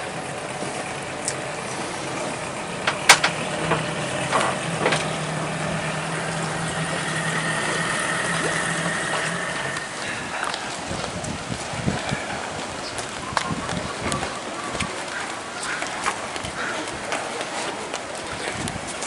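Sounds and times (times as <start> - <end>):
engine idling: 0.0 - 10.9
sharp clicks or knocks: 2.8 - 5.1.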